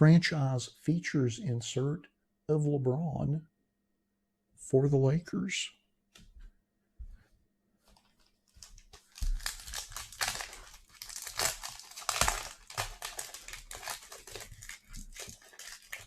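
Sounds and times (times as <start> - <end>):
plastic wrap crinkling: 7.9 - 16.0.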